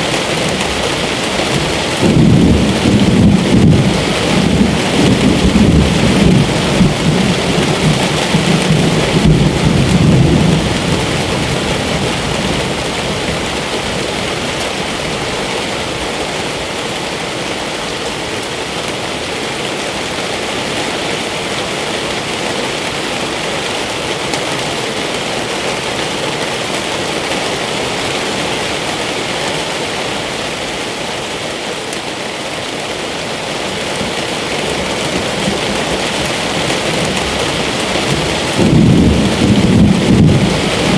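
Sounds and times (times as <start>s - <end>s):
heavy rain falling: 0.0s - 40.9s
low rumble of thunder: 1.5s - 13.6s, 35.0s - 40.9s.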